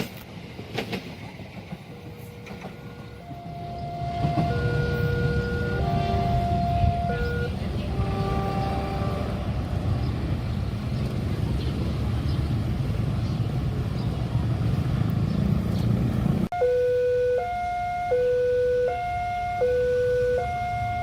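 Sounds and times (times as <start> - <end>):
train passing rumble: 0.0 - 16.5
level crossing alarm two-tone: 3.2 - 7.6, 16.5 - 21.0.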